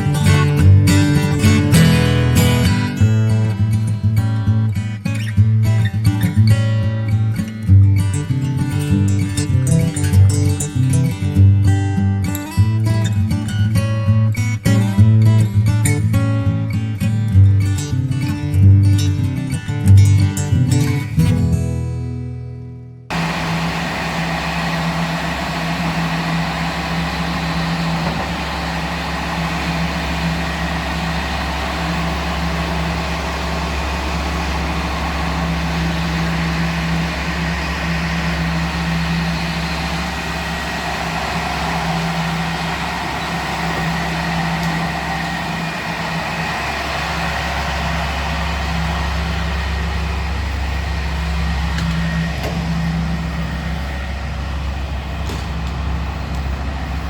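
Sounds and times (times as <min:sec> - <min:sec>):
locomotive engine humming: 0:00.0 - 0:03.8, 0:23.1 - 0:57.0.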